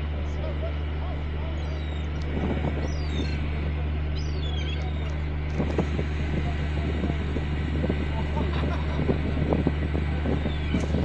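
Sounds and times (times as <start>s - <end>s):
ferry engine drone: 0.0s - 11.0s
seagulls calling: 0.3s - 5.4s, 10.2s - 11.0s.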